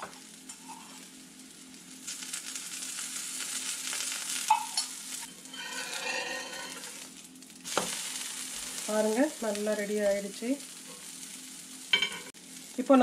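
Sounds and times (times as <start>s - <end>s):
omelette sizzling in oil: 0.0s - 13.0s
spatula scraping pan: 5.3s - 7.0s.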